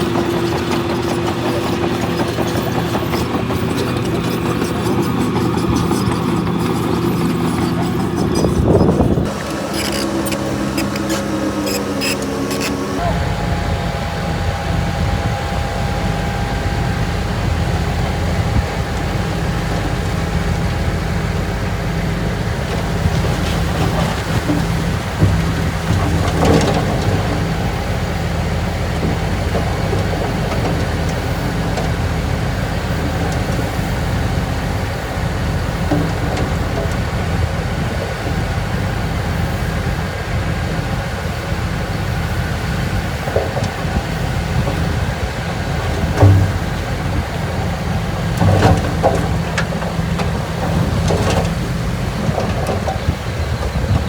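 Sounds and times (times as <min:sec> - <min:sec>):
diesel machinery engine drone: 0:00.0 - 0:54.0
metal clanks and clattering: 0:45.8 - 0:47.2.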